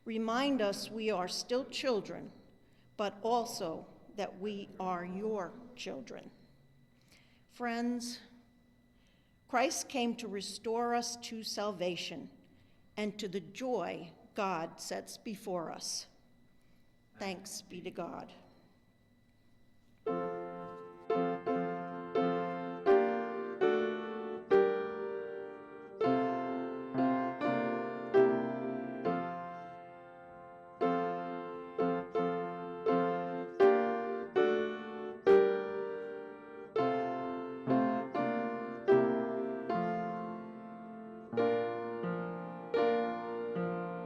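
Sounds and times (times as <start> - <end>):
slow hymn-like piano piece: 20.0 - 44.0.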